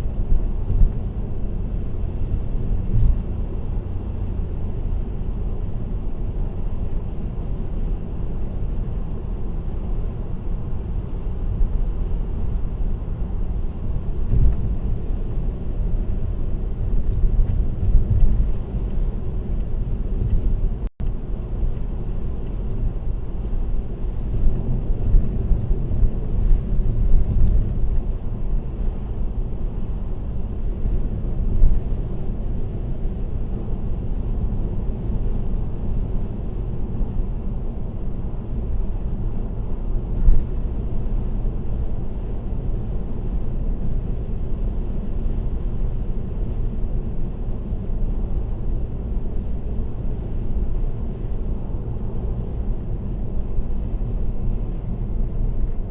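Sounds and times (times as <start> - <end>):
car road and engine rumble: 0.0 - 55.9.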